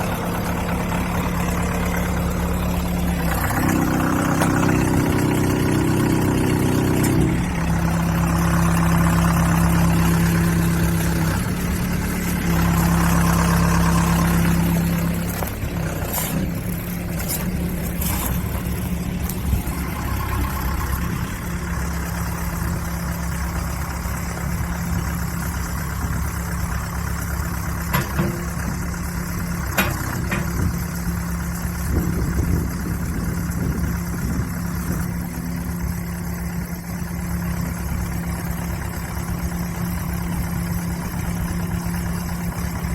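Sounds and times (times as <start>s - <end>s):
backhoe engine running: 0.0s - 42.9s
knocks and clanks: 3.6s - 7.5s, 27.8s - 28.8s, 29.6s - 30.8s.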